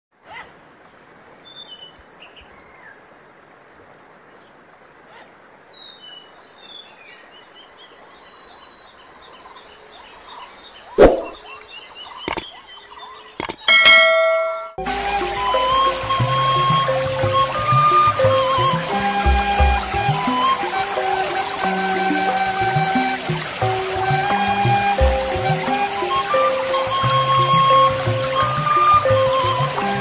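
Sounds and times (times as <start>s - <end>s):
small birds chirping: 3.8s - 14.7s
fountain water splashing: 11.1s - 12.8s, 13.4s - 30.0s
loud ringing tone: 13.4s - 14.8s.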